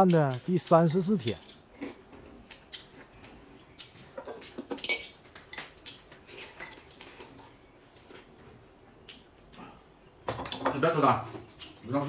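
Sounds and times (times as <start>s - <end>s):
cutlery clinking against dishes: 4.2s - 5.7s.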